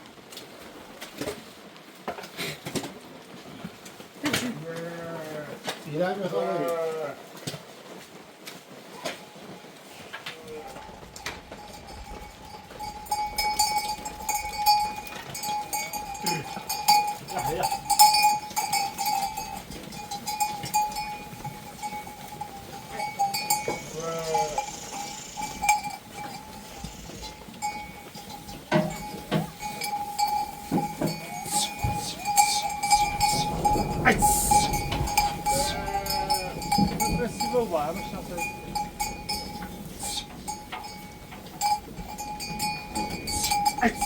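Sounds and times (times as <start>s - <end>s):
sheep bleat: 4.2s - 7.3s, 22.4s - 27.5s, 30.9s - 38.2s, 43.0s - 44.0s
animal bells clinking: 10.8s - 44.0s.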